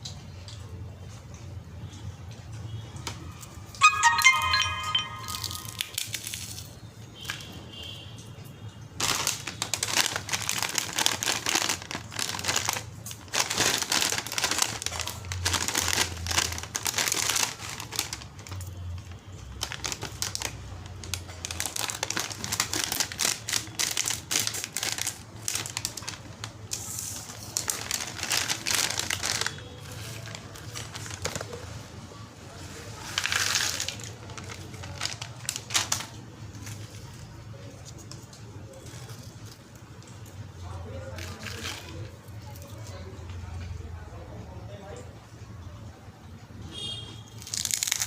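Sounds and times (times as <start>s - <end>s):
packet crinkling: 3.8s - 7.5s, 9.0s - 31.8s, 32.8s - 40.4s, 41.0s - 43.0s, 47.4s - 48.0s.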